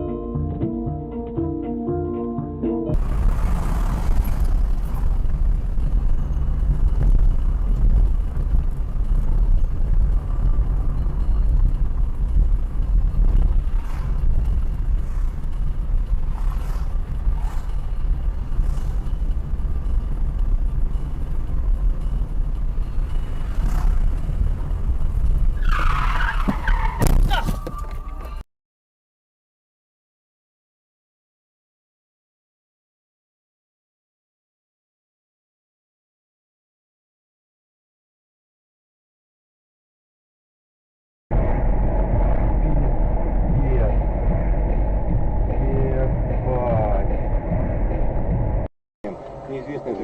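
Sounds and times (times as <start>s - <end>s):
vehicle engine and road rumble: 2.3s - 28.5s, 41.3s - 50.0s.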